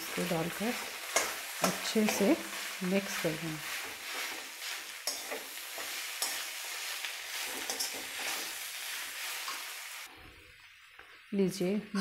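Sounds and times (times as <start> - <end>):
vegetables sizzling in oil: 0.0 - 11.8
metal spatula scraping pan: 3.6 - 9.6.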